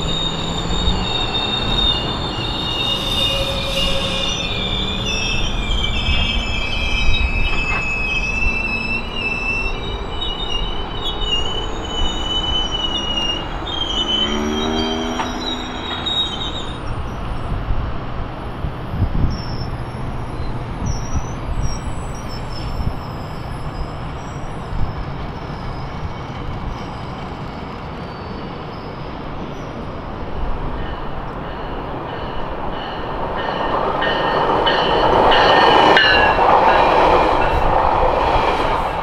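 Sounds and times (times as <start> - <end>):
train wheel squeal: 0.0 - 17.6, 18.8 - 39.0
steel wheels rumbling on rails: 0.0 - 39.0.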